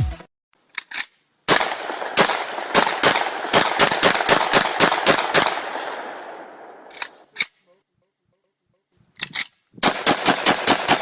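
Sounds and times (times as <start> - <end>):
shotgun shots: 1.5 - 7.3, 9.8 - 11.0.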